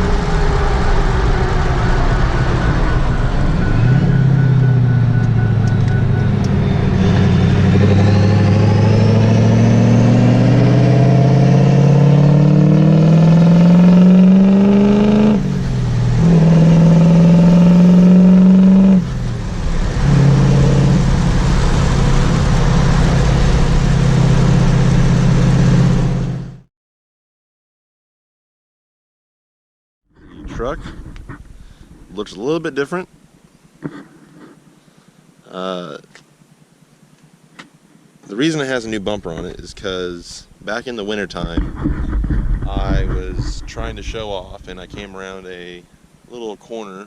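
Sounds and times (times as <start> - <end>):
vehicle engine accelerating: 0.0 - 26.7, 38.3 - 46.4.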